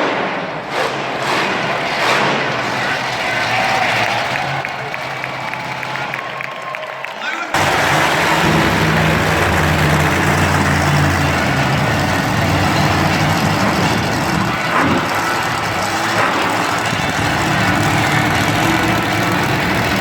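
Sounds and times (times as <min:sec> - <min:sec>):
monster truck engine running: 0:00.3 - 0:06.4, 0:07.6 - 0:20.0.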